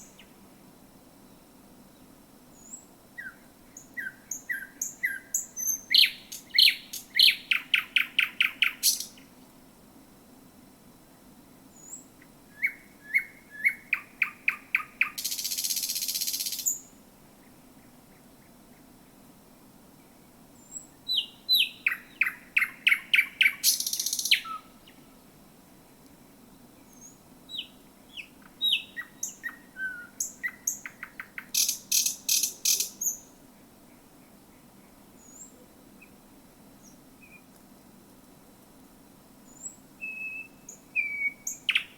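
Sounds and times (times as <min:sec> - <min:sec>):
nightingale singing: 0:00.0 - 0:00.4, 0:01.2 - 0:09.3, 0:11.7 - 0:19.2, 0:20.0 - 0:25.1, 0:26.7 - 0:36.2, 0:36.8 - 0:37.5, 0:39.5 - 0:41.9.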